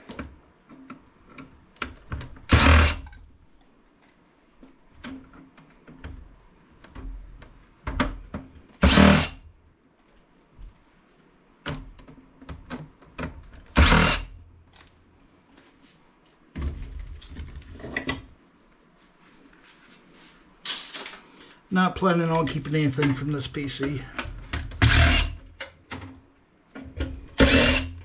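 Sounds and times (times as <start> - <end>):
power tool bursts: 2.5 - 3.0, 8.8 - 9.4, 13.8 - 14.3, 24.8 - 25.4, 27.4 - 28.0
knocks of metal and plastic parts: 5.0 - 9.3.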